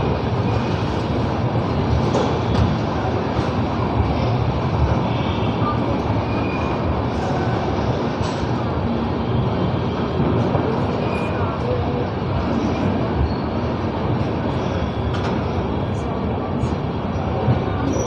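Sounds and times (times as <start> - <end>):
high squeaks from train wheels: 5.0 - 7.2, 10.9 - 11.6, 12.5 - 13.8, 14.4 - 16.0, 17.1 - 18.0.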